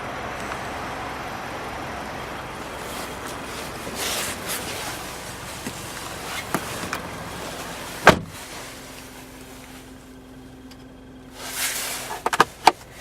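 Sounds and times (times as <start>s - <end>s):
car door shutting: 2.9s - 9.1s.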